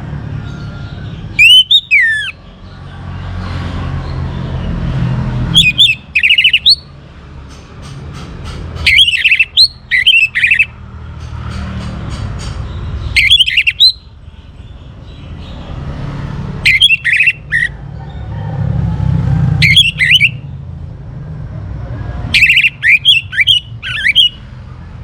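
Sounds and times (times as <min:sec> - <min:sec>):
thrush singing whistled trills: 0:00.7 - 0:02.7, 0:05.5 - 0:06.9, 0:08.8 - 0:10.8, 0:12.7 - 0:14.2, 0:16.6 - 0:17.8, 0:19.6 - 0:20.5, 0:22.3 - 0:24.5.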